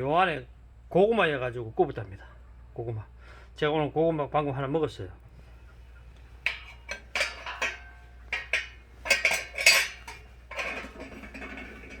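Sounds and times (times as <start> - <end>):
metal stove parts clanking: 6.4 - 12.0.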